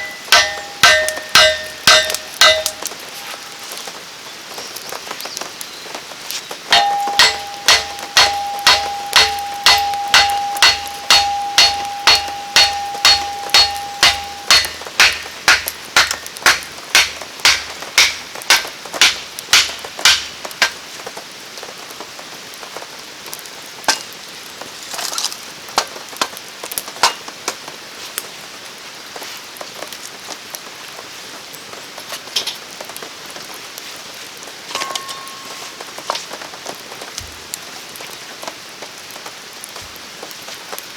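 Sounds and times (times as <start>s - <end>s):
steady ringing tone: 0.0s - 2.9s, 6.7s - 20.2s
rapid metallic strikes: 0.0s - 3.5s, 6.7s - 20.8s
rain pattering: 0.0s - 40.9s.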